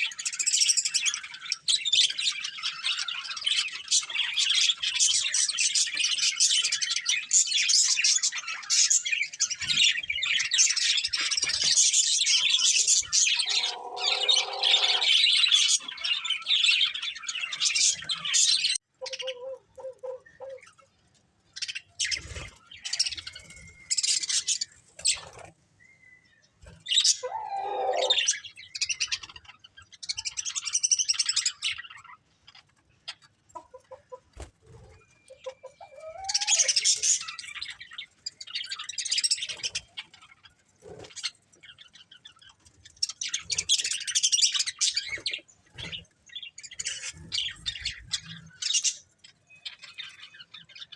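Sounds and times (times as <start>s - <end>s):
budgerigars chirping: 0.0s - 20.8s.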